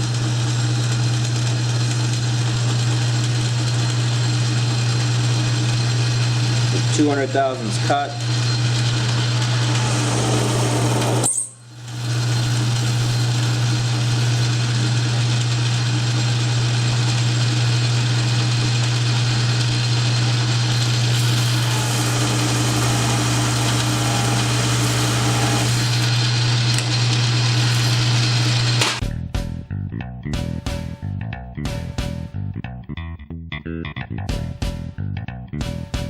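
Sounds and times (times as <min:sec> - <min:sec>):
metal lathe humming: 0:02.6 - 0:17.4, 0:18.0 - 0:29.0.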